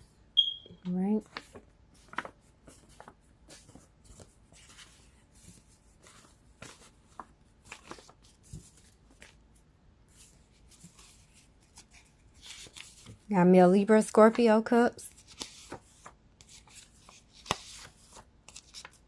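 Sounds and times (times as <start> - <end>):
cards rustling: 1.3 - 9.5, 15.1 - 19.0.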